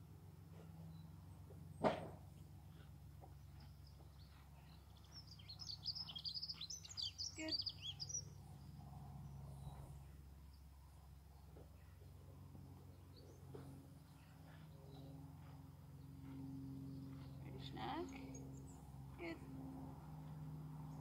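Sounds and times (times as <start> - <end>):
low background hum: 0.0 - 21.0
small birds twittering: 2.7 - 10.7.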